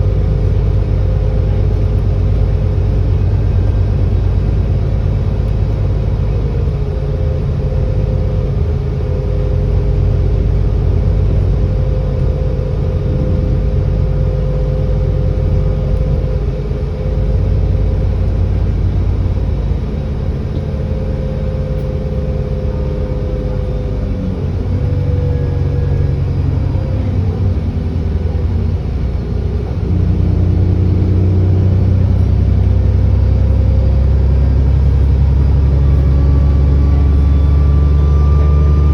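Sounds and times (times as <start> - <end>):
bus engine running: 0.0 - 38.9.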